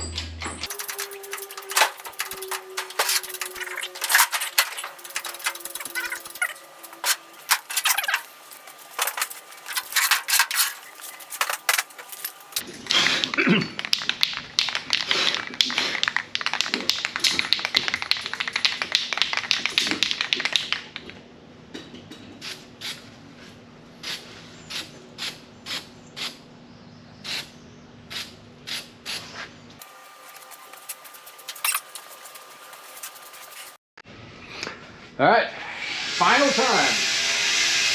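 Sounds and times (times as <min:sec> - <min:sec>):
dense metal clattering: 0:00.6 - 0:12.6, 0:29.8 - 0:33.8
hand tool clicking on sheet metal: 0:00.7 - 0:12.6.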